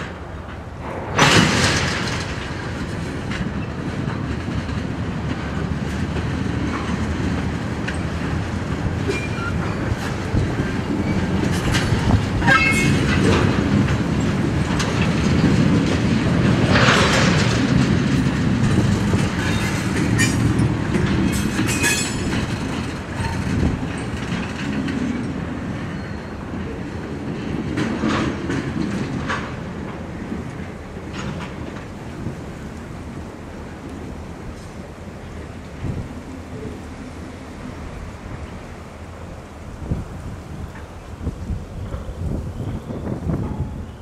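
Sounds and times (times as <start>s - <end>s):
steel wheels rumbling on rail: 0.0s - 44.0s
wheels clicking over rail joints: 0.0s - 44.0s
wheel squeals: 9.0s - 13.4s, 21.3s - 22.4s, 25.2s - 26.7s.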